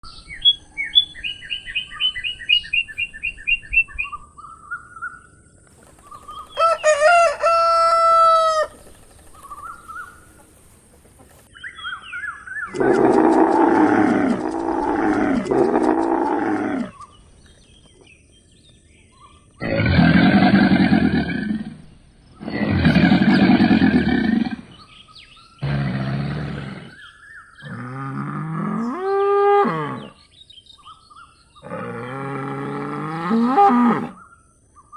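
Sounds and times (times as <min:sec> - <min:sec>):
rooster crowing: 0:06.4 - 0:08.8
long low animal calls: 0:12.7 - 0:17.1, 0:19.6 - 0:24.9, 0:25.6 - 0:30.2, 0:31.6 - 0:34.2.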